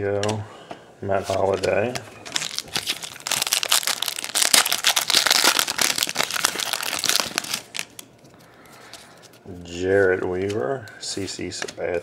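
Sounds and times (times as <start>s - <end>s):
foil wrapper crinkling: 2.2s - 8.1s.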